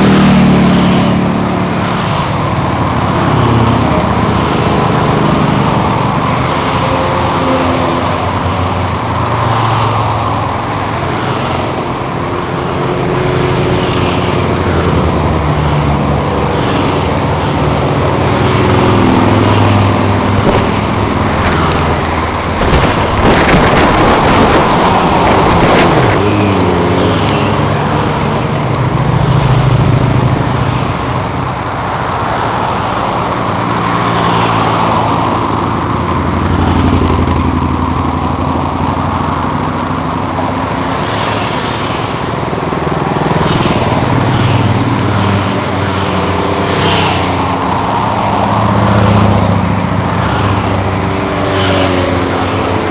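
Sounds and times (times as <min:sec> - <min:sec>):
motorcycle engines running: 0:00.0 - 0:52.9
road and wind noise: 0:00.0 - 0:52.9
vehicle passing by: 0:13.1 - 0:28.3, 0:48.3 - 0:52.9.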